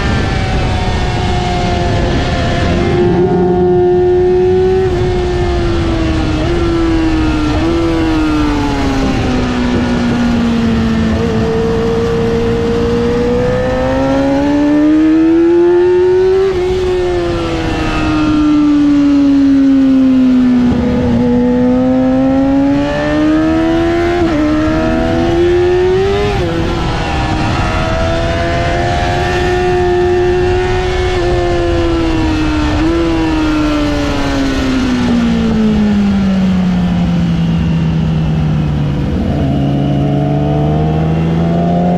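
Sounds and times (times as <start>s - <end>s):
motorcycle engine revving: 0.0s - 41.9s
wind rush: 0.0s - 41.9s.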